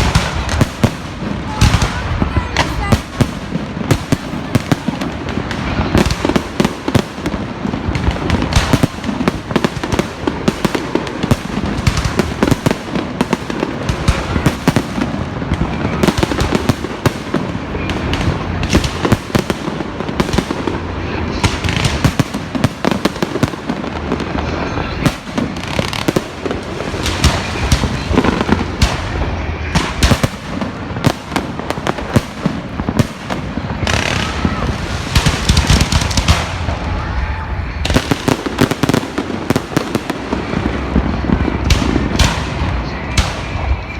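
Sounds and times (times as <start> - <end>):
fireworks and firecrackers bangs: 0.0 - 43.9.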